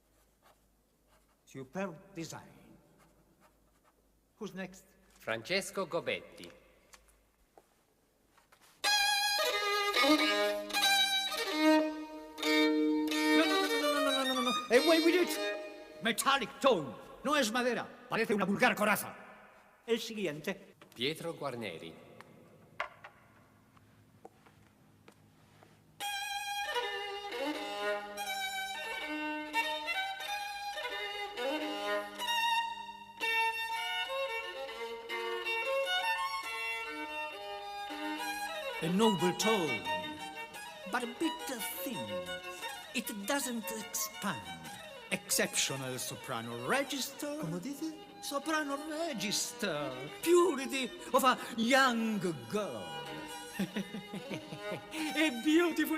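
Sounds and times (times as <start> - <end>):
bowed violin notes: 8.8 - 17.0, 26.0 - 55.9.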